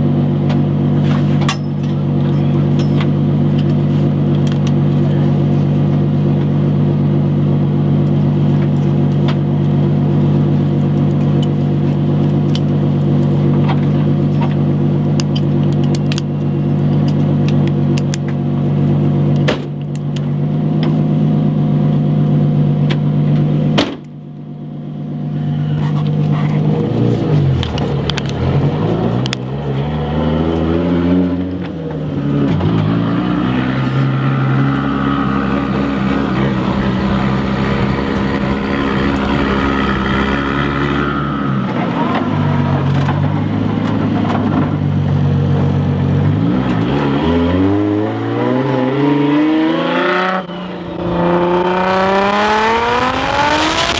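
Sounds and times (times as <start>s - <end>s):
car engine revving: 25.2s - 53.9s.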